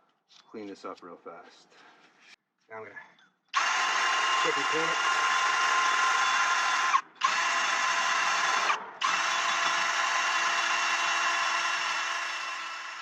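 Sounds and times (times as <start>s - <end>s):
drill spinning wire brush on metal: 3.6s - 13.0s.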